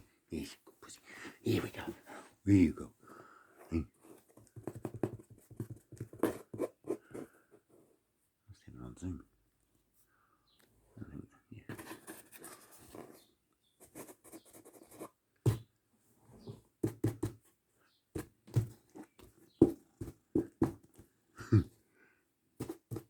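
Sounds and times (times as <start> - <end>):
cat playing taps and scuffles: 4.3 - 6.7, 18.2 - 21.1, 22.6 - 23.0.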